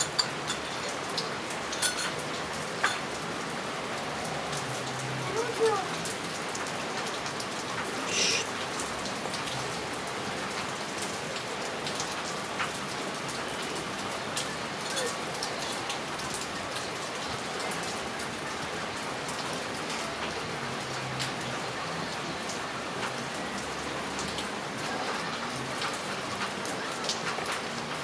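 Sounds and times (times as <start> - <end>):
heavy rain hissing: 0.0 - 26.7
raindrops ticking close by: 0.0 - 28.0.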